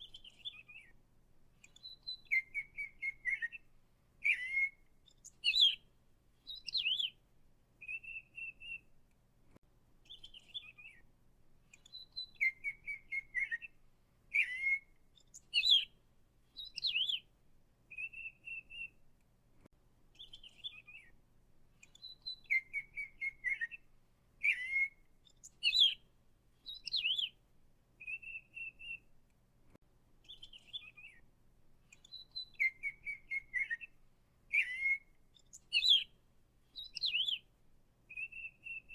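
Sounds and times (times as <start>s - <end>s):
bird song: 0.0s - 9.0s, 10.0s - 19.0s, 20.1s - 27.4s, 28.0s - 29.2s, 30.2s - 38.9s.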